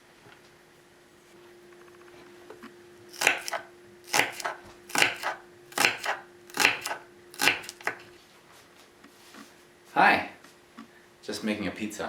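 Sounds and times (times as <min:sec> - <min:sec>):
knife chopping on cutting board: 0:03.1 - 0:08.0.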